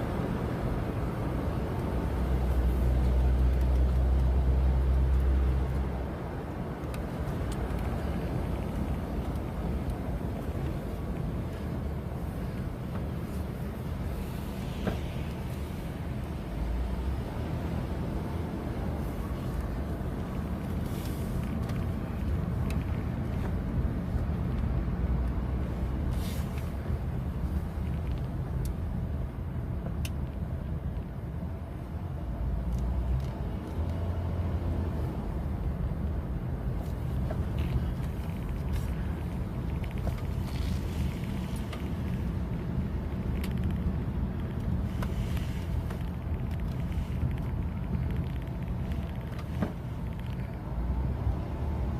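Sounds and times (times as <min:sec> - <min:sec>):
road and engine rumble: 0:00.0 - 0:51.9.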